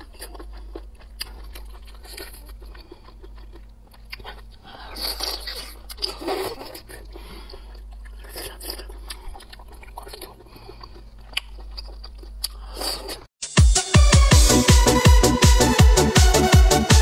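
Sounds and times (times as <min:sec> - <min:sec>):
person chewing wetly: 0:00.0 - 0:13.3.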